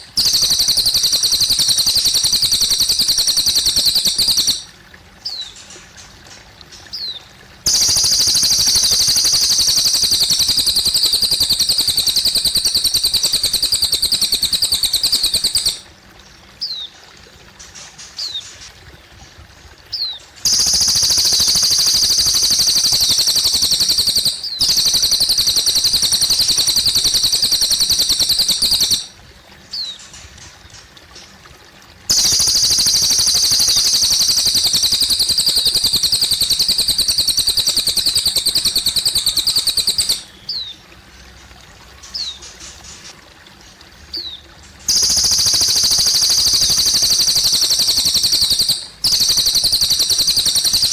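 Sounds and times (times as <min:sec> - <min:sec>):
bird singing high trills: 0:00.0 - 0:04.7, 0:06.9 - 0:15.9, 0:19.9 - 0:30.0, 0:32.1 - 0:40.8, 0:44.2 - 0:50.9
faint trickling water: 0:00.0 - 0:50.9.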